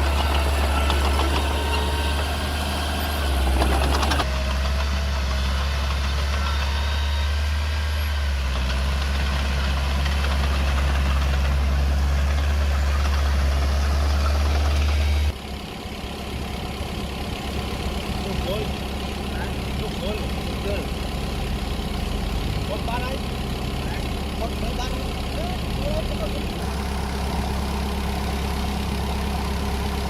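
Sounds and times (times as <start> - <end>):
bulldozer diesel engine rumbling: 0.0 - 30.0.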